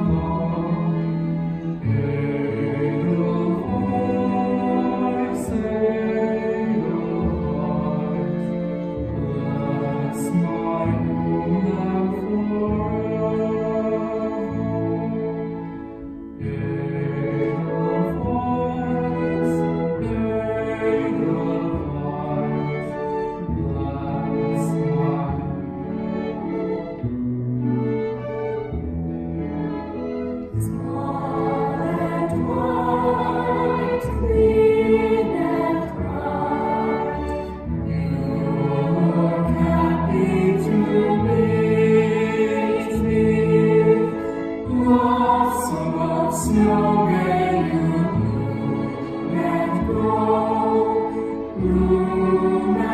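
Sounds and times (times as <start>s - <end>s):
voices singing: 0.0s - 15.1s, 30.5s - 52.9s
slow gentle music: 0.0s - 52.9s.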